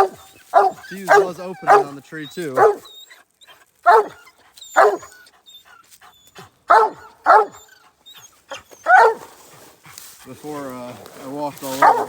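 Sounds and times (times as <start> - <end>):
hound barking: 0.0 - 3.0, 3.8 - 5.2, 6.6 - 7.7, 8.5 - 9.4, 11.5 - 12.0.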